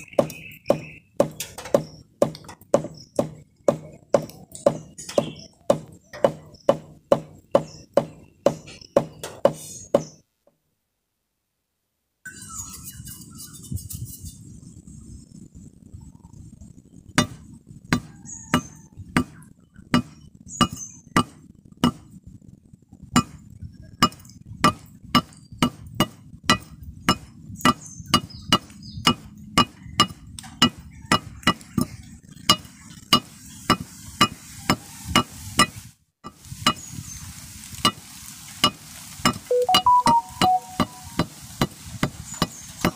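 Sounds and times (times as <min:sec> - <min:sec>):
hammer blows on steel: 0:39.5 - 0:42.9.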